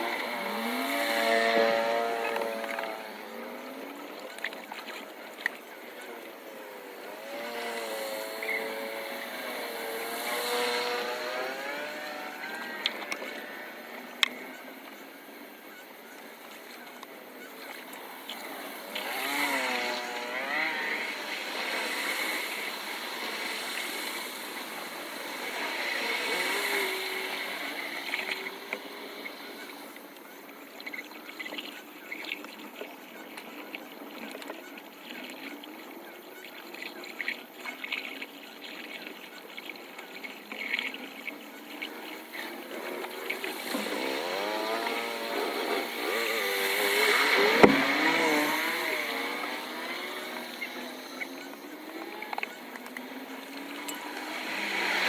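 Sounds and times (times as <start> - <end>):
vehicle engines passing: 0.0 - 4.3, 6.5 - 14.8, 18.0 - 30.0, 42.0 - 55.0
water wash: 17.7 - 55.0.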